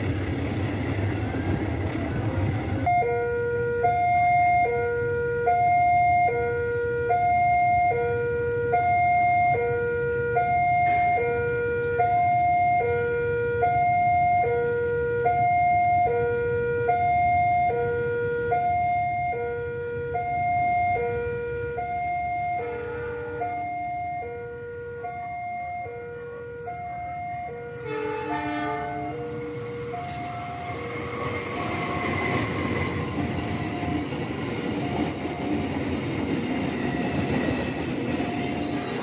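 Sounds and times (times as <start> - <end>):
level crossing two-tone alarm: 2.9 - 32.5.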